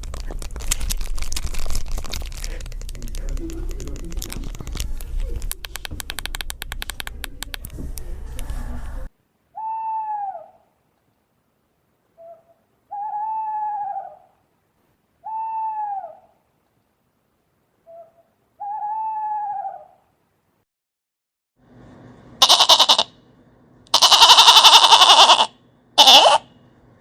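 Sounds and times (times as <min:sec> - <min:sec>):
loud crackling clicking noise: 0:00.0 - 0:07.8
bird hooting: 0:09.5 - 0:10.7, 0:12.2 - 0:14.4, 0:15.2 - 0:16.4, 0:17.8 - 0:20.0, 0:24.1 - 0:26.5.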